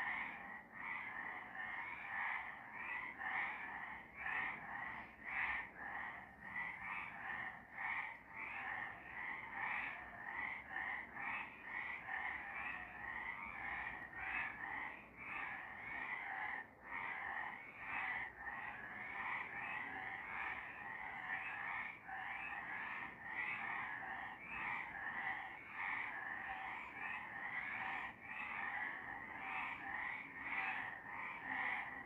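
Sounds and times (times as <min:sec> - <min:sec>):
frogs croaking: 0:00.0 - 0:32.0.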